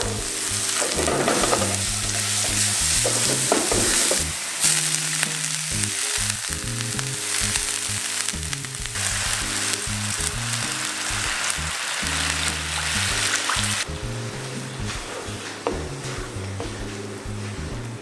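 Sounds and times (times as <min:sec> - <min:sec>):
oil sizzling in pan: 0:00.0 - 0:17.6
sauce pouring into pan: 0:00.3 - 0:13.9.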